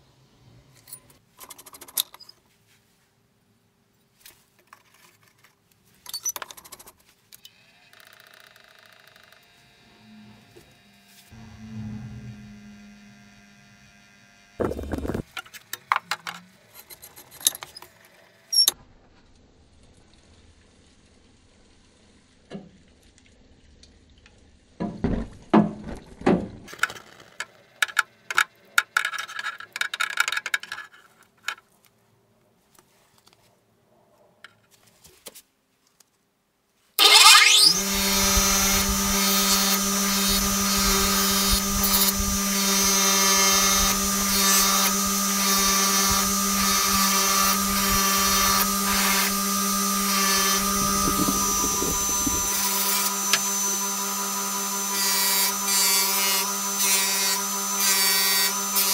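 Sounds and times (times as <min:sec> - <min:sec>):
power tool whining: 0:07.4 - 0:15.3, 0:37.0 - 0:58.9.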